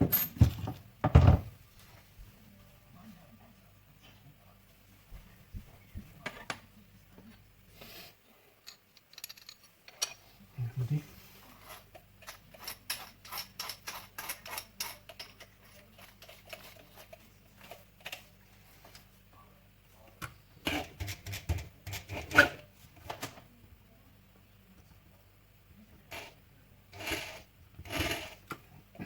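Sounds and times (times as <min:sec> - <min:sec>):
tools clicking and tapping: 0:08.6 - 0:10.2, 0:11.9 - 0:16.6.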